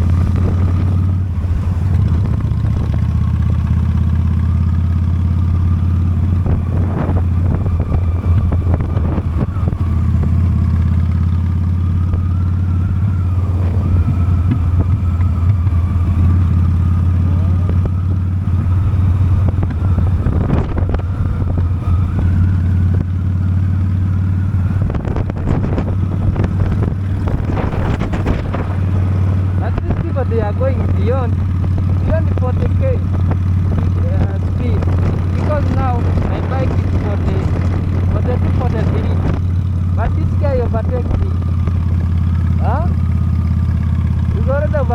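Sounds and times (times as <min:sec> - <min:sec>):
motorcycle engine cruising: 0:00.0 - 0:44.9.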